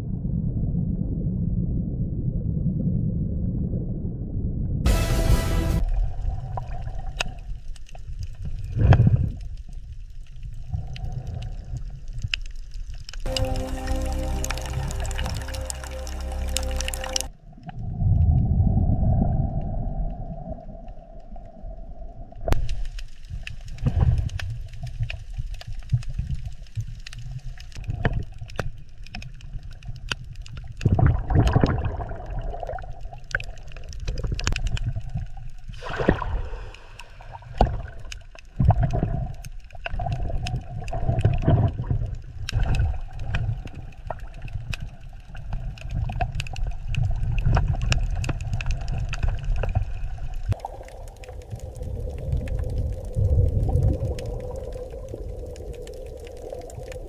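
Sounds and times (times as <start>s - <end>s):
underwater moving water rumble: 0.0s - 4.9s, 5.7s - 57.0s
water bubbling and gurgling: 5.8s - 22.6s, 29.2s - 57.0s.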